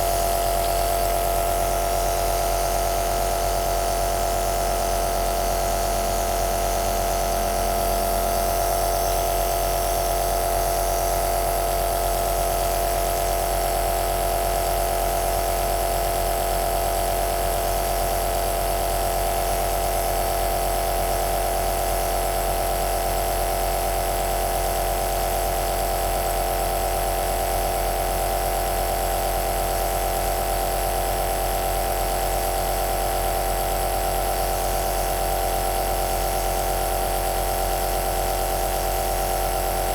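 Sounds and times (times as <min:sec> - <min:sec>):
nebulizer machine humming: 0:00.0 - 0:03.5.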